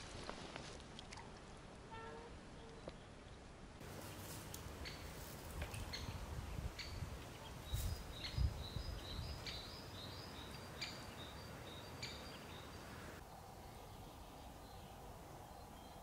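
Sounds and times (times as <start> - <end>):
small bird chirping: 4.1 - 13.2.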